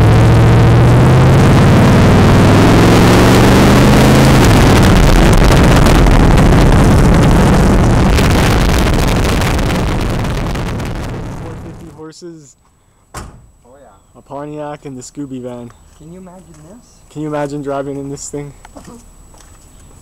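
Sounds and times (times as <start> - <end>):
car engine accelerating hard: 0.0 - 12.0
wind and road noise: 0.0 - 12.0, 14.5 - 20.0.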